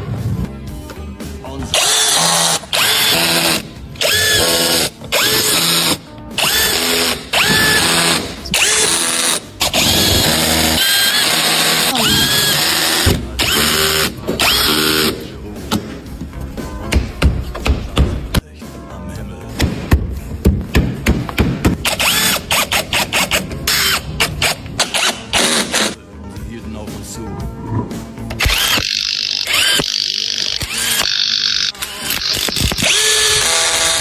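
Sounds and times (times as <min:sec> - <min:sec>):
power tool whining in bursts: 0:01.8 - 0:15.1, 0:28.4 - 0:34.0.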